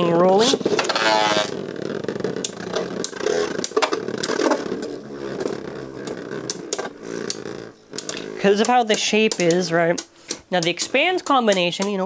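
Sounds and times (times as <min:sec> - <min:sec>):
spinning tops whirring: 0:00.0 - 0:12.0
tops clashing clicks: 0:02.4 - 0:12.0.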